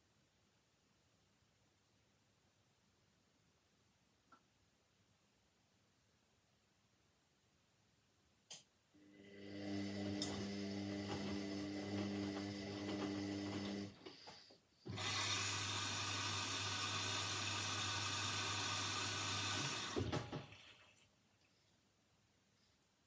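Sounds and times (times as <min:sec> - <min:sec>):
washing machine motor hum: 0:09.1 - 0:14.2, 0:14.8 - 0:20.9
washing machine hissing: 0:09.3 - 0:21.0.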